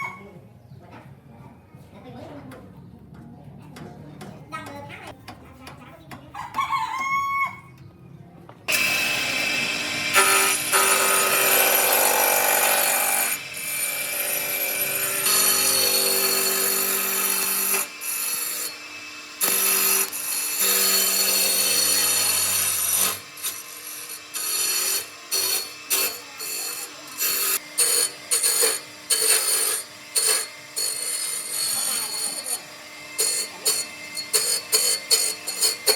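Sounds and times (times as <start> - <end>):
power tool working on wood: 8.7 - 35.9.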